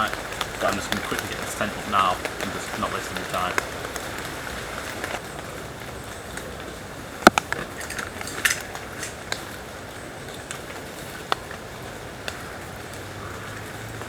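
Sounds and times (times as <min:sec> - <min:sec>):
background hiss: 0:00.0 - 0:07.6
tent gear clicks and knocks: 0:07.3 - 0:09.5.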